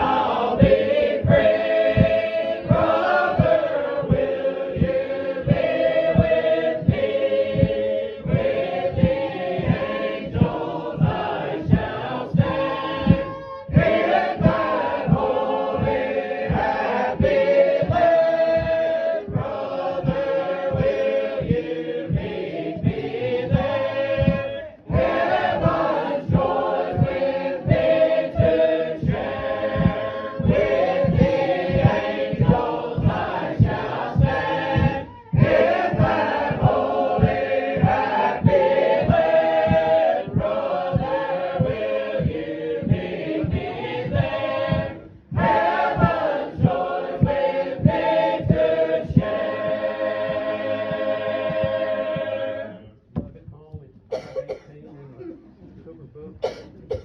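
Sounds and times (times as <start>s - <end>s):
group singing in harmony: 0.0s - 53.1s, 54.1s - 54.6s
steady low beat: 0.0s - 57.0s.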